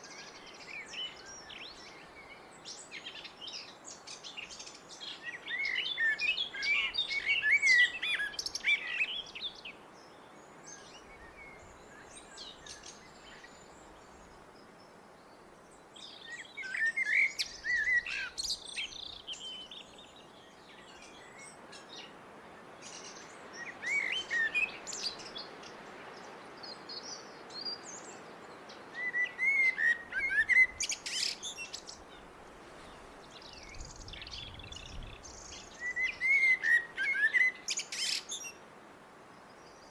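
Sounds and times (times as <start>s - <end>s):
blackbird singing: 0.0s - 9.7s, 16.0s - 21.5s, 22.9s - 25.5s, 28.9s - 32.2s, 33.4s - 38.6s.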